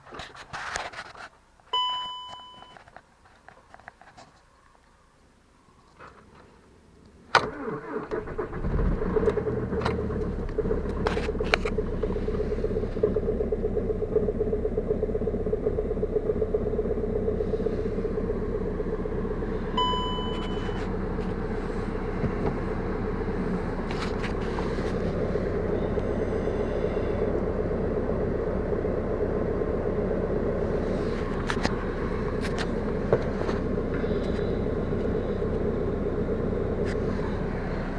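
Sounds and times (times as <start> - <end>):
short beep: 1.8 - 2.8, 19.8 - 20.9
diesel engine starting and idling: 7.3 - 37.9.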